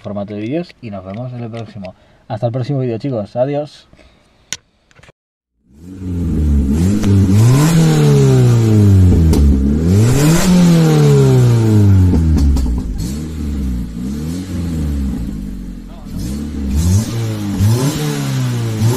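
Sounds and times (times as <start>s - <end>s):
car engine revving from idle: 5.7s - 18.9s.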